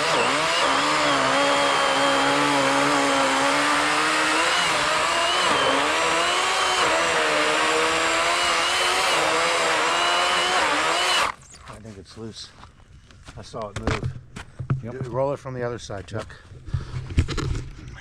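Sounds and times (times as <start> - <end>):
electric chainsaw cutting log: 0.0 - 11.4.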